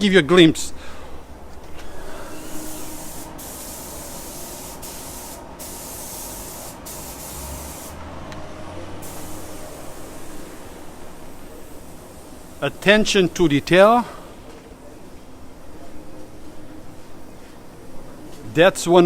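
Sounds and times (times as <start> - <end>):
steady low hum: 0.0 - 18.5
paint spray gun hissing: 2.2 - 8.0, 9.0 - 12.7.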